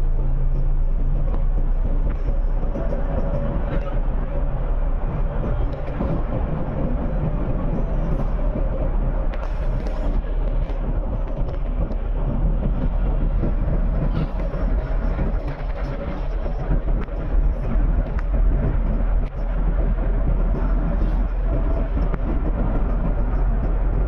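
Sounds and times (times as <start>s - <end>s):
train running: 0.0s - 24.0s.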